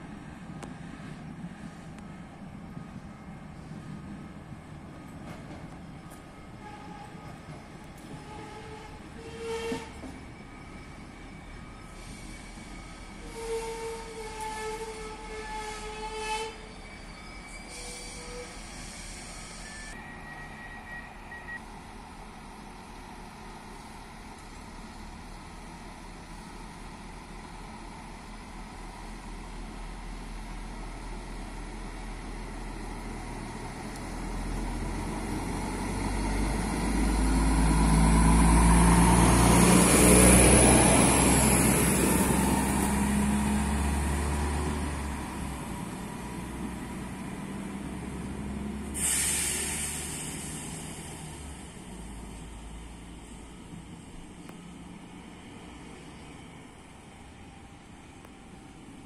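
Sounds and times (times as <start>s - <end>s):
diesel railcar engine: 0.0s - 59.0s
train wheels on rails: 0.3s - 59.0s
sudden hiss: 48.8s - 52.4s.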